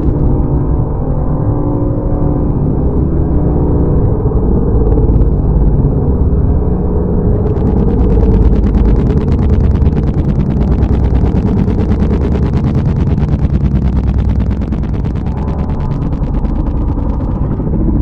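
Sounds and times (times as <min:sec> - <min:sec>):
fast even crackle: 0:00.0 - 0:01.0, 0:07.2 - 0:18.0
deep rumbling: 0:00.0 - 0:18.0.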